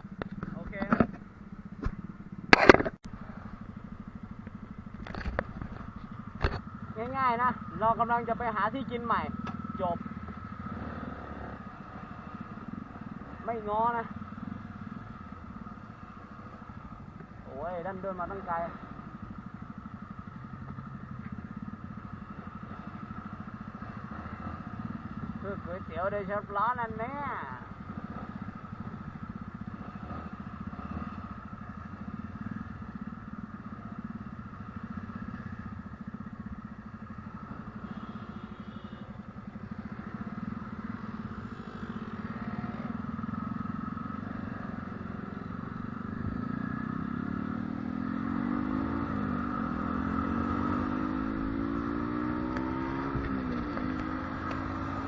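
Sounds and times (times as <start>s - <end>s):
vehicle engine revving: 6.4s - 14.8s, 40.2s - 55.0s.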